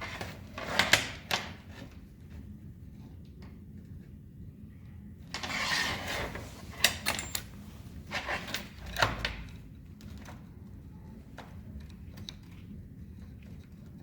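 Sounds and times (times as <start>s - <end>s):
scraping rustle: 5.4s - 8.9s
tools clicking and knocking: 6.8s - 7.5s.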